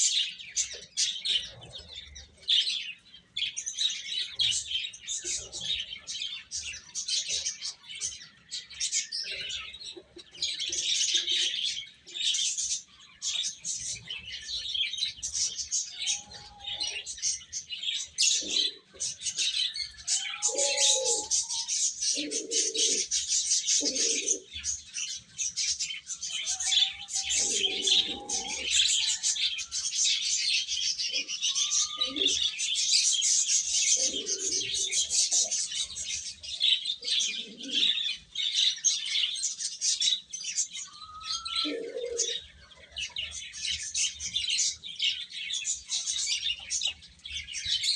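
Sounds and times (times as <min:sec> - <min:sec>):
baby chicks peeping: 0:00.0 - 0:47.9
lower longer bird calls: 0:20.0 - 0:23.1, 0:26.4 - 0:30.4, 0:31.0 - 0:32.7, 0:40.8 - 0:42.6.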